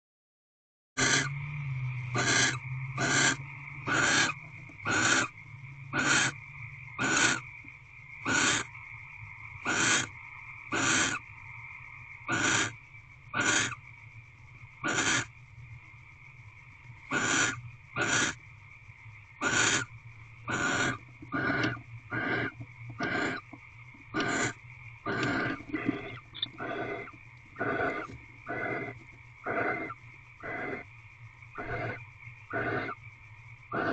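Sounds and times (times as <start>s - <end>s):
owl harsh hissing calls: 1.0s - 1.4s, 2.1s - 7.6s, 8.2s - 8.8s, 9.6s - 11.3s, 12.2s - 13.8s, 14.8s - 15.3s, 17.1s - 18.4s, 19.4s - 19.9s, 20.5s - 30.9s, 31.5s - 33.0s, 33.7s - 33.9s.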